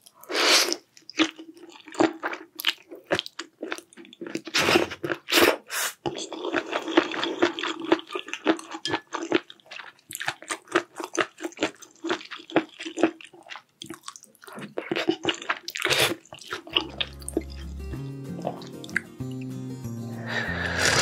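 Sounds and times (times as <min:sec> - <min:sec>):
person chewing crunchy food: 0:00.0 - 0:17.8
music: 0:16.7 - 0:21.0.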